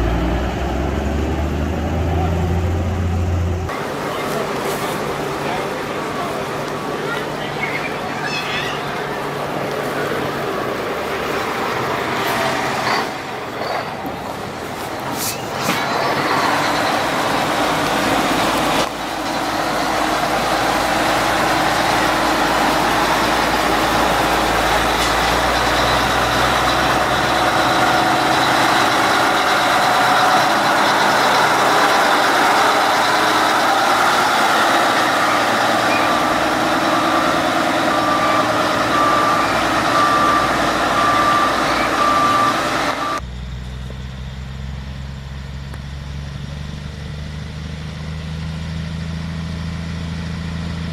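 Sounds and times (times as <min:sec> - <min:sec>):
truck engine running: 0:00.0 - 0:50.9
reversing alarm beeping: 0:35.1 - 0:43.4.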